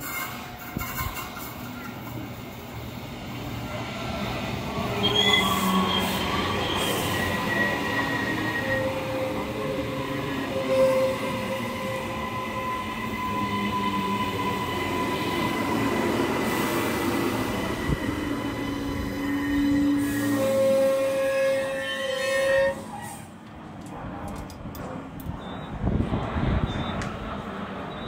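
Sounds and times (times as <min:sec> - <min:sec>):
train brakes squealing: 0:00.0 - 0:02.3, 0:04.7 - 0:23.4, 0:26.6 - 0:27.1.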